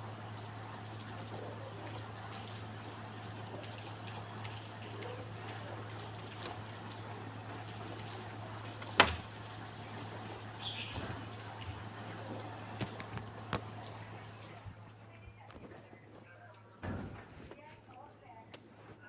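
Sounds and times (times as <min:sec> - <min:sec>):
steady rain: 0:00.0 - 0:15.2
water trickling: 0:00.0 - 0:15.5
low steady hum: 0:00.0 - 0:19.0.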